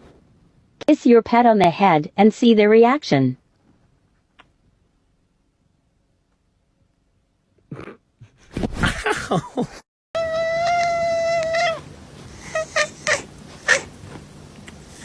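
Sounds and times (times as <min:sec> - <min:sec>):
cat meowing: 0:10.2 - 0:11.8
cat yowling: 0:10.2 - 0:13.9.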